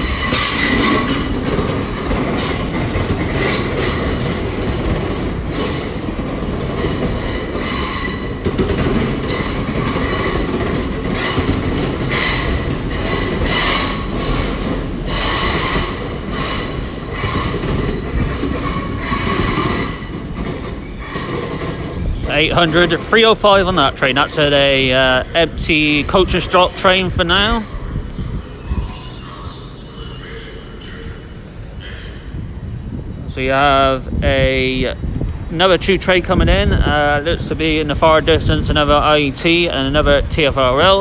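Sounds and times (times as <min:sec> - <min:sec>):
train clicking over rail joints: 0:00.0 - 0:32.6
train wheels squealing on rails: 0:00.0 - 0:32.8.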